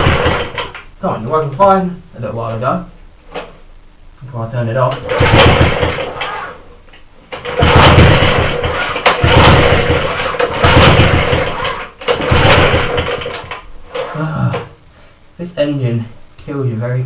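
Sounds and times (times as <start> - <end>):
pull-starter cranking engine: 5.1 - 6.4, 7.4 - 13.5.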